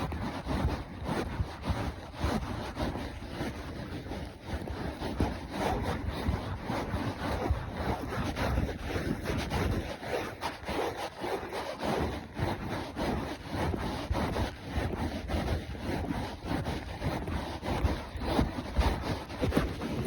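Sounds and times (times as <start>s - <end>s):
rubbing scraping noise: 0.0s - 20.0s.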